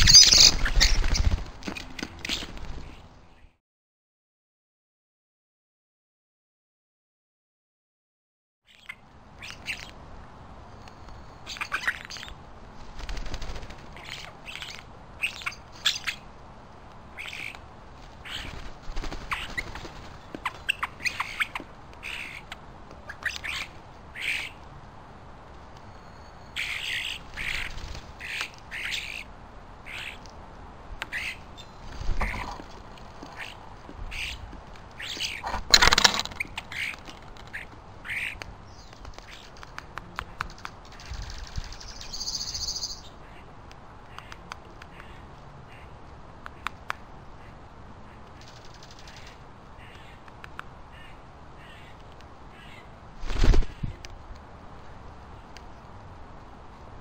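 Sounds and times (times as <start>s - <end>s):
bird calls and squawks: 0.0s - 3.6s, 8.7s - 10.0s, 11.4s - 12.4s, 13.9s - 16.3s, 17.1s - 17.6s, 18.2s - 24.6s, 26.2s - 30.3s, 31.0s - 39.7s, 40.3s - 43.5s, 44.1s - 46.8s, 50.9s - 54.0s.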